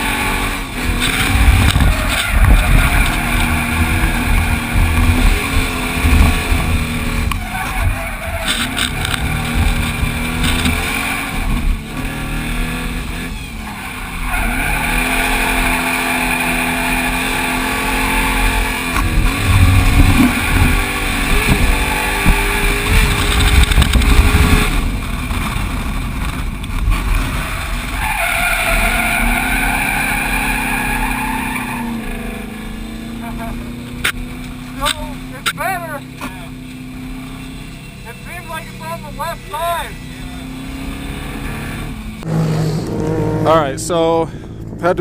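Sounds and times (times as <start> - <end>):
car engine revving: 0.0 - 45.0
tyres squealing: 7.1 - 10.8, 28.0 - 41.8.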